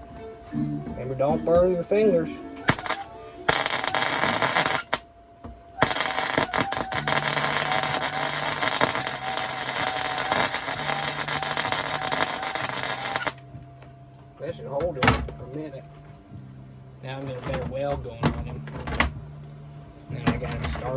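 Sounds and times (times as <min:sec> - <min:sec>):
arc welder crackling: 0:02.7 - 0:05.0, 0:05.8 - 0:13.4.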